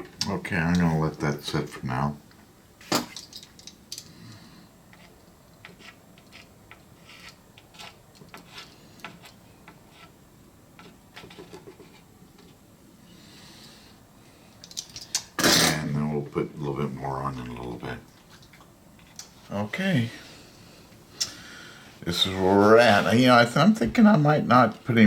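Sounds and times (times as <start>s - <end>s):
small objects clicking and tapping: 2.9s - 6.9s, 14.6s - 15.3s.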